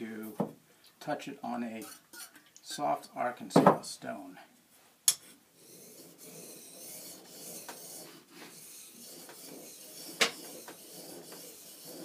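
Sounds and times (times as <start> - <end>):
blade scraping on sharpening stone: 5.6 - 12.0.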